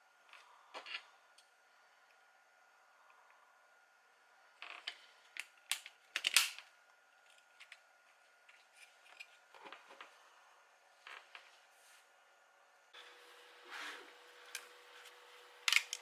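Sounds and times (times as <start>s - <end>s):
small plastic parts clicking: 15.6s - 16.0s.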